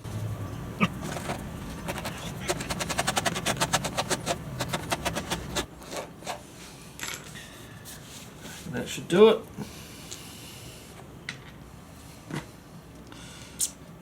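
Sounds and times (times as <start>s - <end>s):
scourer rasping on rubber: 0.8s - 6.1s.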